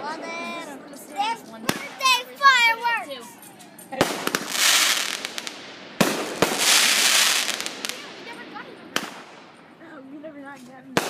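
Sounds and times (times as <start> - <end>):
firework bangs: 1.6 - 3.0, 3.8 - 9.8
firework hissing crackle: 4.0 - 9.5.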